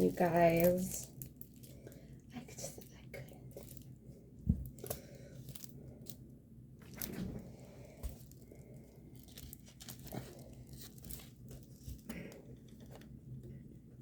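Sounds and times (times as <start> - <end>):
plastic packaging crinkling: 0.0 - 3.9, 6.8 - 7.4, 8.0 - 13.1.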